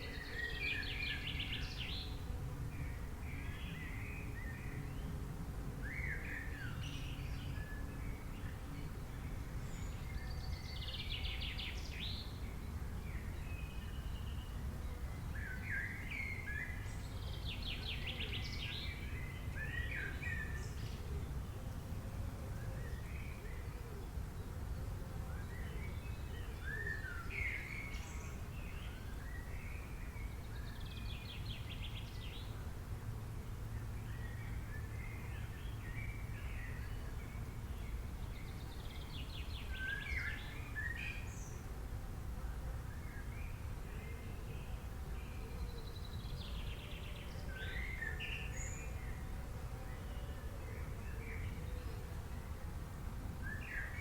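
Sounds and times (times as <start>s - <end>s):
wild birds singing: 0.0s - 5.2s, 5.8s - 32.7s, 33.5s - 41.7s, 42.4s - 54.0s.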